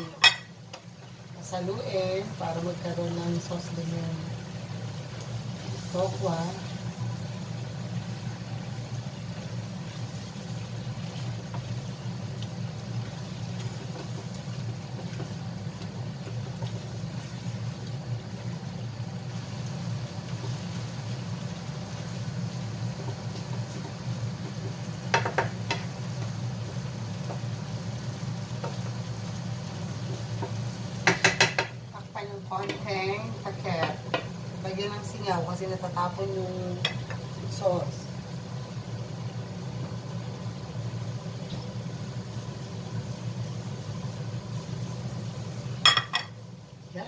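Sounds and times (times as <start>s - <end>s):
food sizzling in a wok: 0.0s - 47.0s
spatula knocking against pan: 25.1s - 25.9s, 31.0s - 31.8s.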